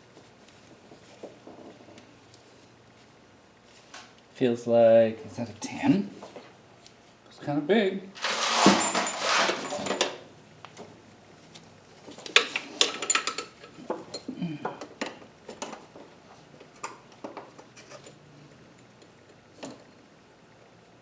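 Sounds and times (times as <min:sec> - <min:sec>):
metal hand tools clinking: 0:08.2 - 0:10.2.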